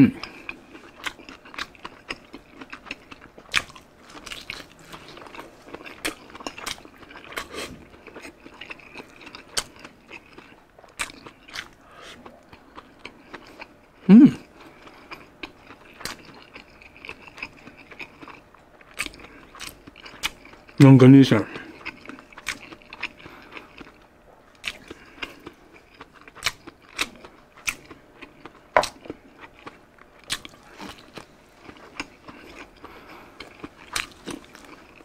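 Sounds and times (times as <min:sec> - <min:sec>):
person biting and chewing: 0:00.2 - 0:13.7, 0:15.1 - 0:20.8, 0:21.7 - 0:24.0, 0:24.6 - 0:35.0.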